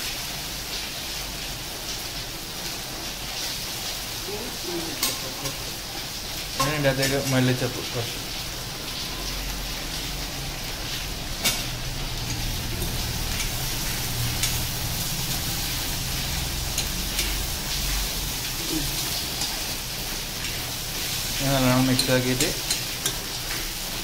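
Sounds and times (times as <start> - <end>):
food sizzling in a pan: 0.0 - 24.0
spatula stirring: 11.4 - 24.0.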